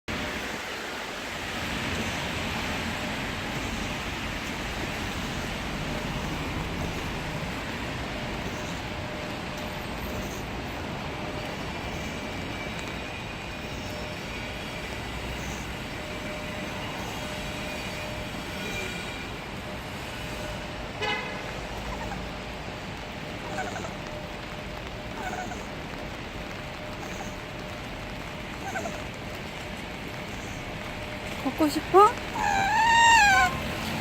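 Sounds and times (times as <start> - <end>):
heavy rain: 0.1 - 34.0
road traffic: 0.1 - 34.0
dog whimpering: 21.8 - 22.4, 23.4 - 24.1, 25.1 - 25.8, 26.9 - 27.4, 28.6 - 29.1, 31.5 - 34.0.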